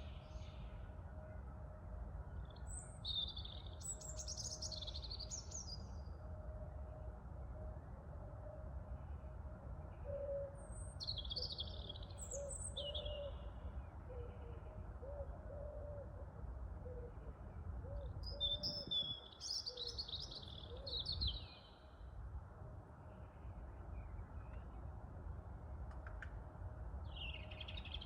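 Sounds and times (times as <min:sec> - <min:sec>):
small songbirds chirping: 0:02.4 - 0:06.1, 0:10.6 - 0:14.2, 0:18.0 - 0:22.0, 0:27.0 - 0:28.0
wind rumbling on microphone: 0:18.1 - 0:19.3.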